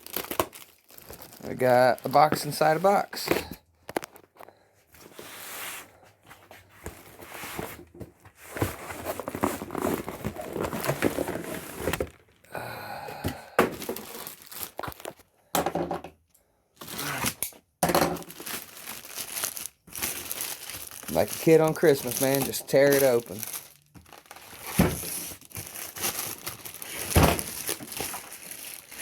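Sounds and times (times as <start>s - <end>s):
cardboard packaging tearing: 0.0s - 2.3s, 8.6s - 12.3s, 13.8s - 15.2s, 16.8s - 17.5s, 18.2s - 29.0s
cardboard crinkling: 0.0s - 4.4s, 6.3s - 12.4s, 13.6s - 15.3s, 18.2s - 29.0s.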